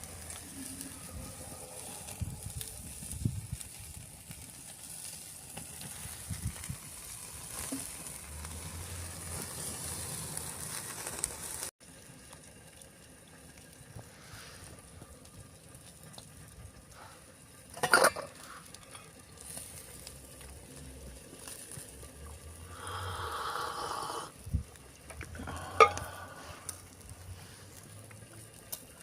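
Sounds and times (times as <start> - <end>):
faint sizzling: 0.0 - 29.0
steady hiss: 13.6 - 17.4, 18.2 - 29.0
metal cookware clinking: 17.8 - 19.1.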